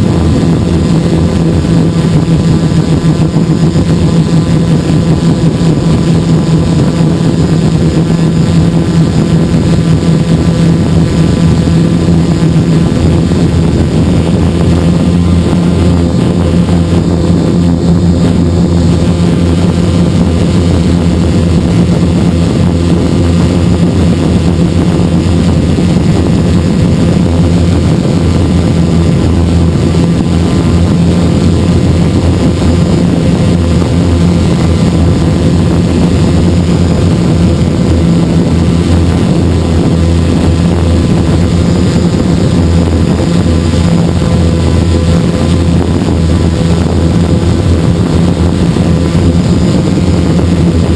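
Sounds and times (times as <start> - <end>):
drone motors buzzing: 0.0 - 50.9.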